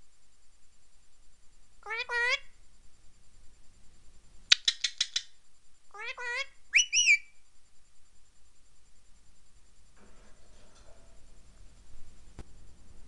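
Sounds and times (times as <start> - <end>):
parrot calling: 1.8 - 2.5, 4.5 - 5.3, 5.9 - 7.3.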